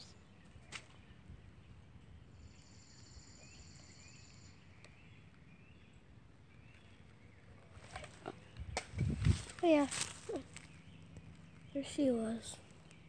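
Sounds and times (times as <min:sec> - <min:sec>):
bird chirps: 0:00.0 - 0:01.2, 0:02.2 - 0:07.5.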